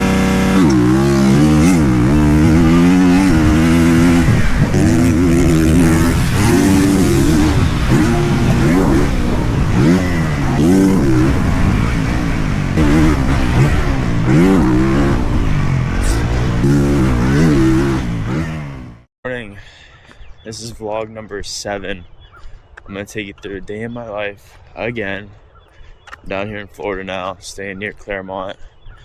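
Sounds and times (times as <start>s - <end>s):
dirt bike engine revving: 0.0s - 19.1s.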